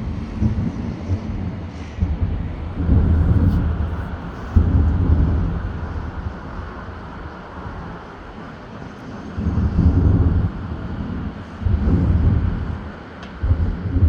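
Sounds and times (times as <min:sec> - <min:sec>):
steady background noise: 0:00.0 - 0:14.0
distant fireworks booming: 0:02.0 - 0:08.5.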